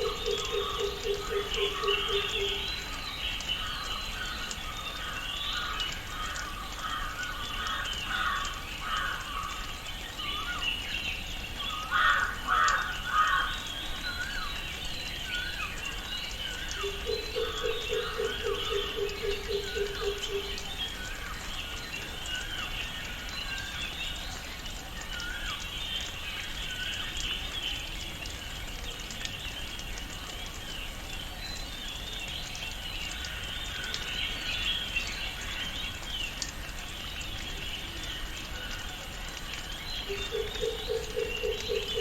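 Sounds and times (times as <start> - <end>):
birds calling and chirping: 0.0 - 24.5.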